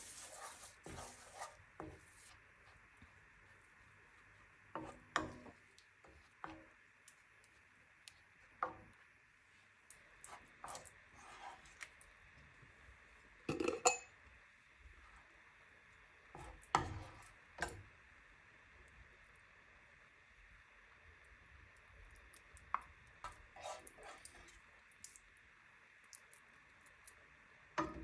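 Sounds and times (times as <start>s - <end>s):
utensils clinking on pots and glass: 13.5s - 14.1s.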